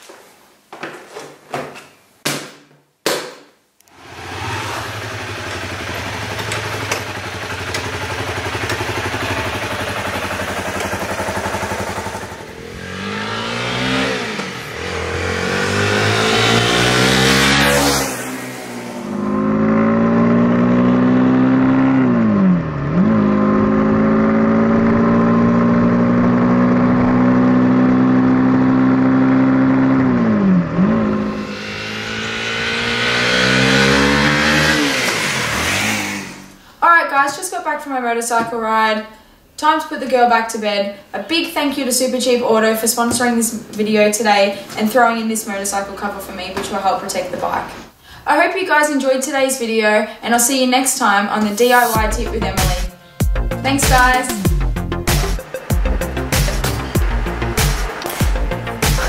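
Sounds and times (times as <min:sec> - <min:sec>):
motorcycle engine revving: 0:03.9 - 0:36.6, 0:51.4 - 0:59.0.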